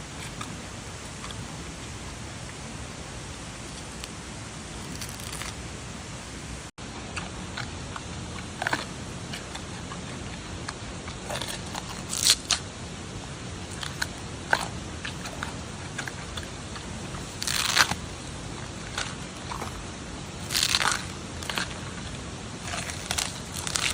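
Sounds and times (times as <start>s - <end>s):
steady background hiss: 0.0s - 23.9s
panda crunching bamboo: 3.6s - 5.7s, 7.2s - 12.7s, 13.6s - 23.9s.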